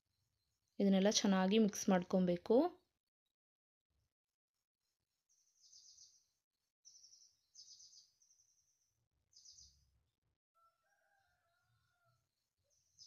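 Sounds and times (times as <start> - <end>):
faint bird chirping: 5.3 - 13.0.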